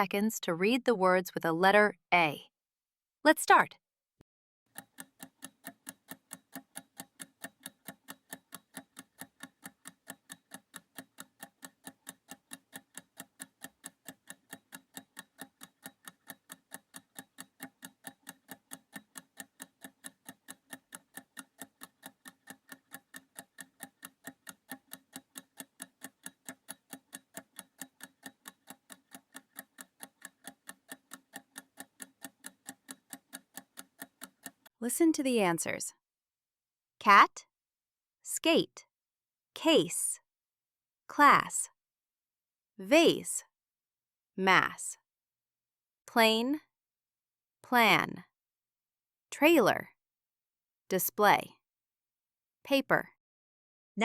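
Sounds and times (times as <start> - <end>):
clock ticking fast: 4.7 - 35.6.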